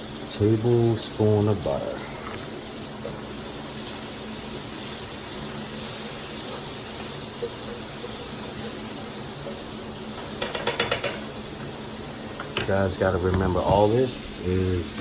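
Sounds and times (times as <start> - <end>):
onions sizzling in a frying pan: 0.0 - 15.0.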